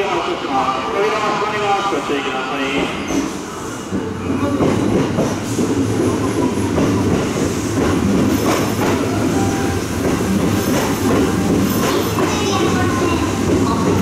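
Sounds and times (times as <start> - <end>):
electric train rolling past: 0.0 - 14.0
wheels clacking over rail joints: 4.5 - 14.0.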